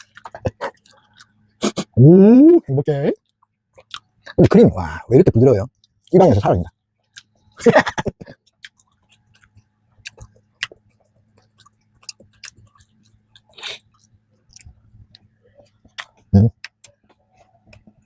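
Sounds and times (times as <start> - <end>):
chewing with wet mouth clicks: 0.0 - 1.7, 3.2 - 4.4, 7.0 - 7.6, 8.3 - 18.0.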